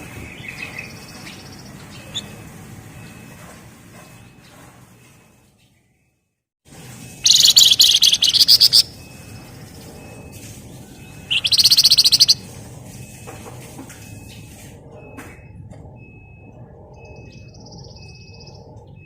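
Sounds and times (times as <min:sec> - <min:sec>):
songbird rattling trill: 0:00.4 - 0:03.2, 0:07.2 - 0:09.9, 0:10.8 - 0:12.6
faint short peeps: 0:07.2 - 0:09.0, 0:11.3 - 0:12.5.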